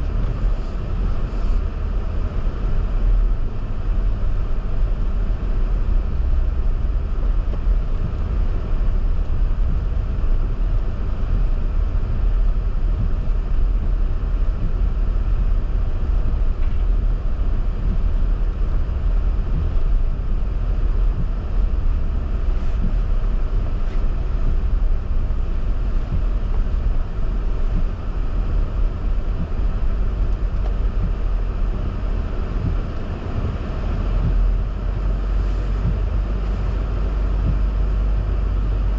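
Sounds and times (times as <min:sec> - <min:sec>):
car engine and road noise: 0:00.0 - 0:38.9
wind noise: 0:00.0 - 0:38.9.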